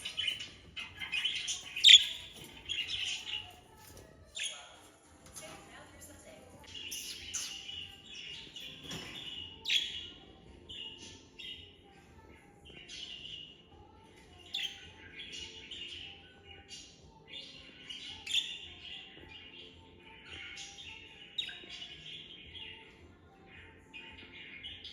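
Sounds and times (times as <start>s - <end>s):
budgerigars chattering and warbling: 0.0s - 3.5s.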